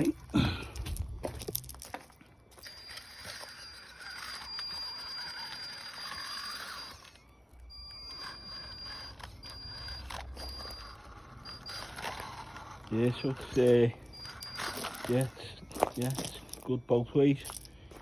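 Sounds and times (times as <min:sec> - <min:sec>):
toy car electric motor whining: 0:02.5 - 0:16.7.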